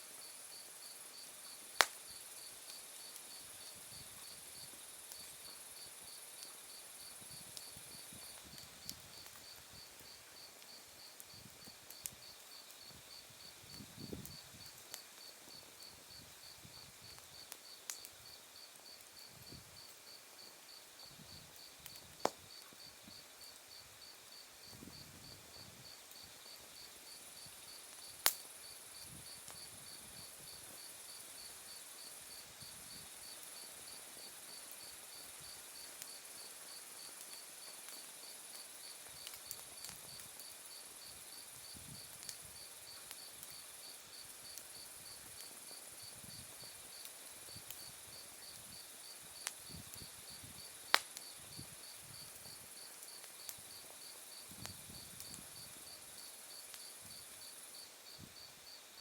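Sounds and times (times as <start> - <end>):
wood fire crackling: 0.6 - 23.5, 24.3 - 57.7.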